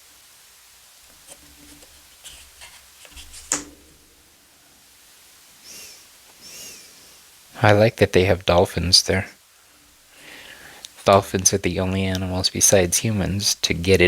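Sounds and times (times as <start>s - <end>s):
cards rustling and clicking: 1.1s - 3.8s
soft swishes of cards: 1.2s - 3.6s
sharp tap: 3.5s - 3.9s.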